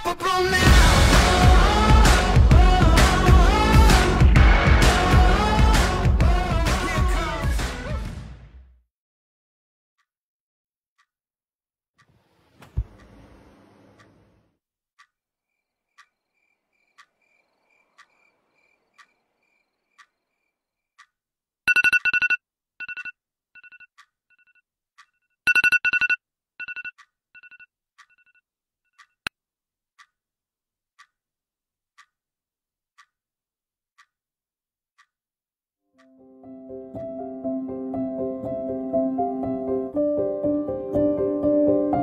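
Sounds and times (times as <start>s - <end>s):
clock ticking: 21.0s - 28.4s, 31.0s - 31.2s, 32.0s - 32.2s, 33.0s - 33.2s, 34.0s - 34.2s.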